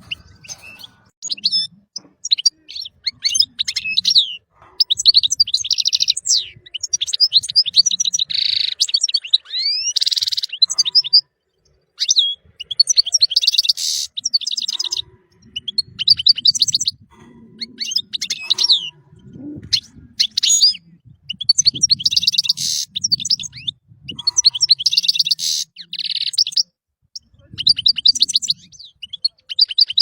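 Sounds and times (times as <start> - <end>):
harsh rasping bird notes: 0.0 - 1.8, 22.3 - 22.9.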